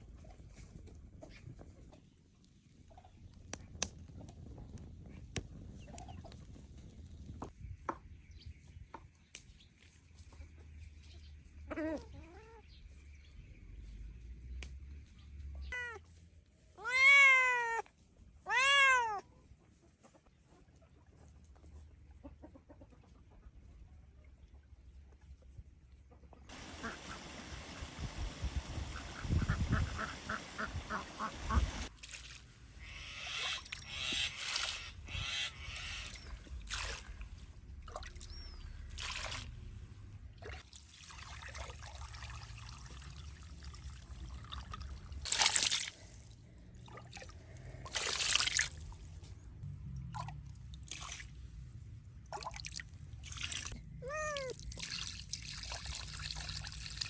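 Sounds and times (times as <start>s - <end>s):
hissing noise bursts: 26.5s - 31.9s
pulsed animal calls: 26.5s - 31.9s
rising and falling animal call: 26.5s - 31.9s.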